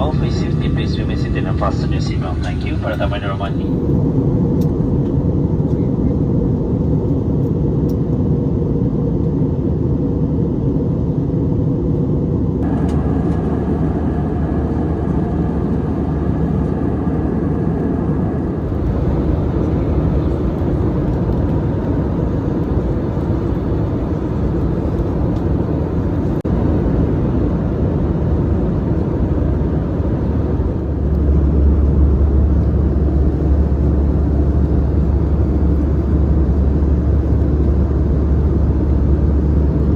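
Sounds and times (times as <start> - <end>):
airplane cabin engine rumble: 0.0 - 39.9
deep hum: 12.6 - 39.9.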